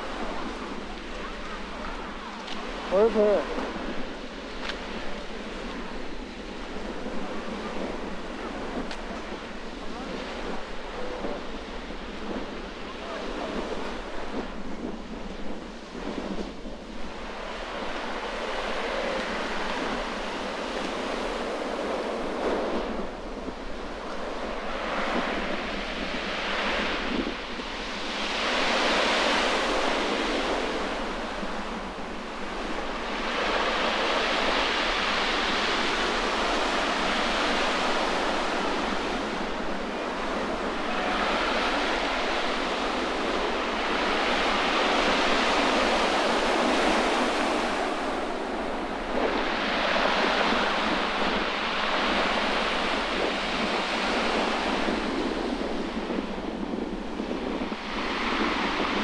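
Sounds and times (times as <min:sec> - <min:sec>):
sea waves breaking on shore: 0:00.0 - 0:59.0
wind buffeting microphone: 0:00.0 - 0:59.0.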